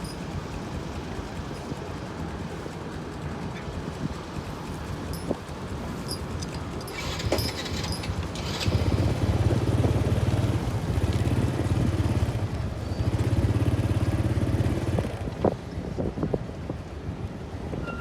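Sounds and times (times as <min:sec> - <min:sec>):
small engine running: 0:06.8 - 0:15.6.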